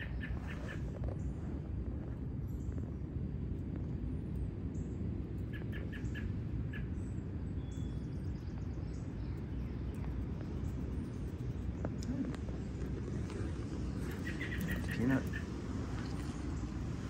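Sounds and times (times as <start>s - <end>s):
low outdoor rumble: 0.0s - 17.0s
faint high bird chirps: 5.5s - 12.6s.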